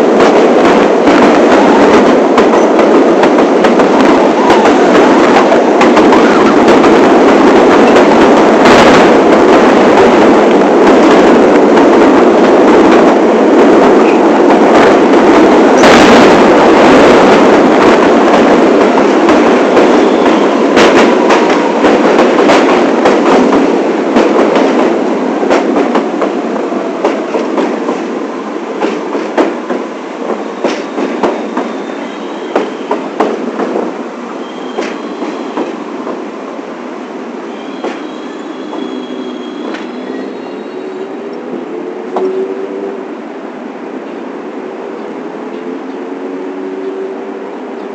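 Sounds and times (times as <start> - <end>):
subway train wheels rumbling on rail: 0.0 - 47.9
clacks at rail joints: 0.2 - 12.1, 17.6 - 26.4, 27.0 - 36.3, 37.7 - 40.1.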